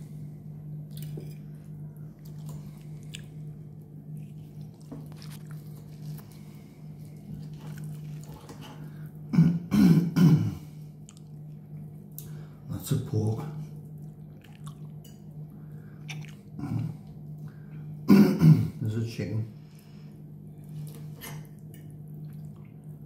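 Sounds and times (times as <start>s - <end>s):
steady low hum: 0.0s - 23.0s
person chewing food: 0.7s - 9.2s, 10.9s - 12.4s, 13.9s - 17.8s.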